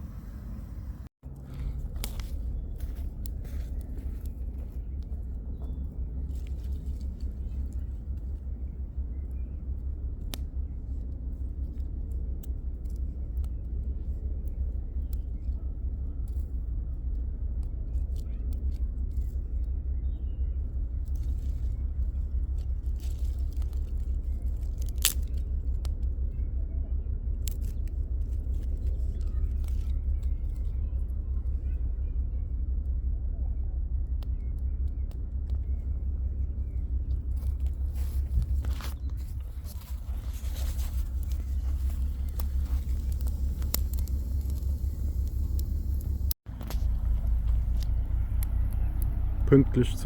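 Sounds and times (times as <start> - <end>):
steady low rumble: 0.0 - 50.0
campfire crackling and popping: 6.2 - 19.8, 21.0 - 26.3, 34.0 - 50.0.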